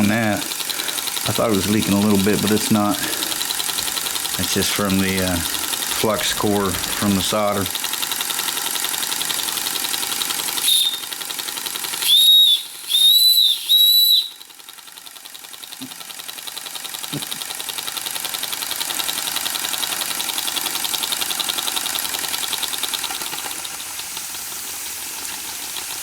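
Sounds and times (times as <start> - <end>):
steam engine running beat: 0.0 - 26.0
toy steam engine whistle: 10.2 - 14.6.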